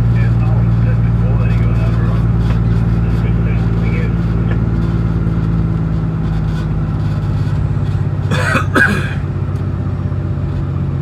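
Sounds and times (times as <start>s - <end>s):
vehicle engine droning: 0.0s - 11.0s
person clearing throat: 8.3s - 9.3s.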